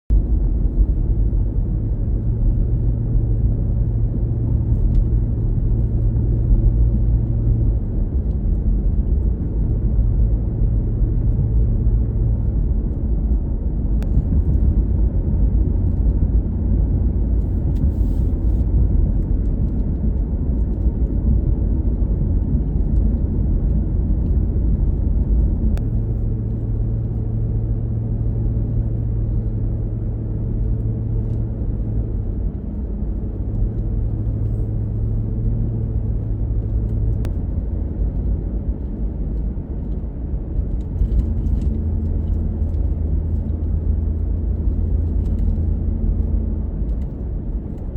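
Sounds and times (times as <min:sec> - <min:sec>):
car road and engine rumble: 0:00.1 - 0:47.9
low hum: 0:00.1 - 0:47.9.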